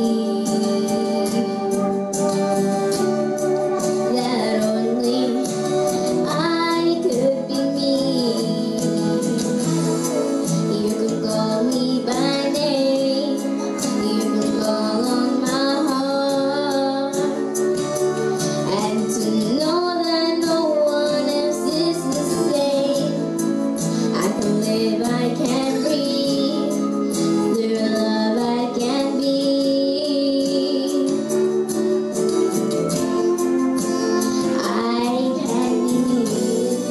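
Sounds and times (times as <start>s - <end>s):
children and women singing: 0.0s - 2.5s, 4.1s - 9.6s, 10.8s - 17.4s, 18.7s - 23.2s, 24.2s - 26.9s, 27.5s - 31.3s, 34.4s - 36.9s
instrumental accompaniment: 0.0s - 36.9s.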